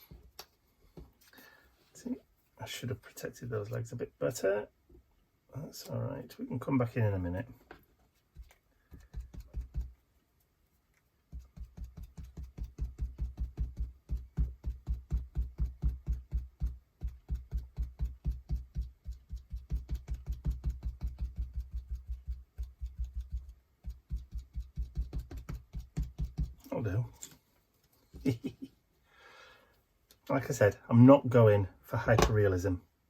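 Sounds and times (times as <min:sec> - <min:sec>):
sponge dabbing paint on paper: 0:07.9 - 0:27.0.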